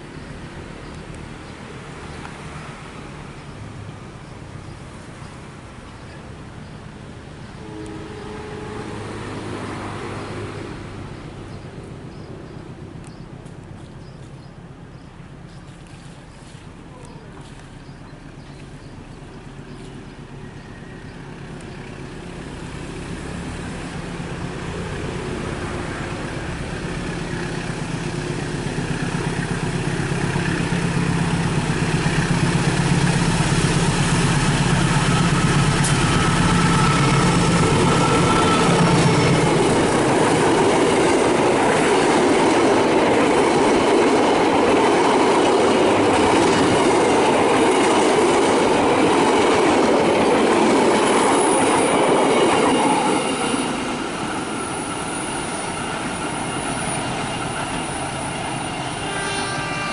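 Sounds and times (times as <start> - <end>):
locomotive engine drone: 16.1 - 59.9
train wheels clattering on rails: 28.7 - 59.1.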